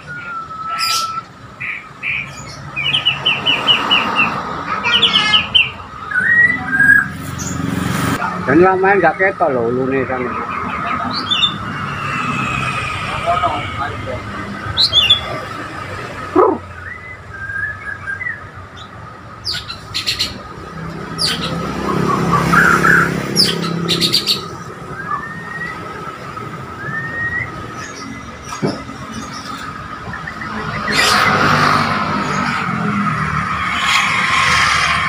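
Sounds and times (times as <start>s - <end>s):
songbird whistling: 0.0s - 4.3s, 5.0s - 7.6s, 16.6s - 20.4s, 21.2s - 28.5s
rush of noise: 10.5s - 16.8s.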